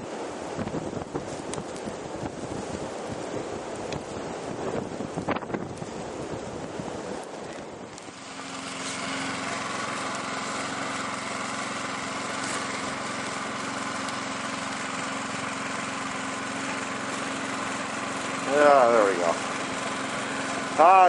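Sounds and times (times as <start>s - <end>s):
wind buffeting microphone: 0.3s - 8.0s
snow blower engine running: 7.9s - 21.0s.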